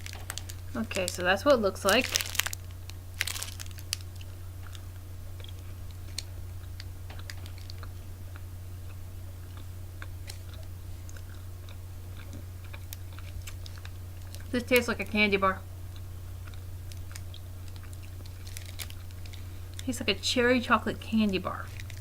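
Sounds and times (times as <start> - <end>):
chewing with small crunches: 0.0 - 20.0, 20.8 - 22.0
steady low hum: 0.0 - 22.0
biting into a snack bar: 2.0 - 14.5, 15.9 - 19.9, 21.7 - 22.0.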